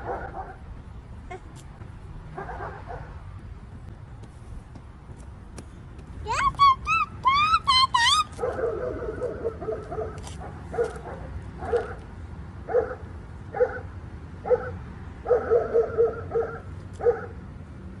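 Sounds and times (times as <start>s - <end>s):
dogs barking: 0.0s - 0.7s, 2.3s - 3.2s, 8.3s - 17.4s.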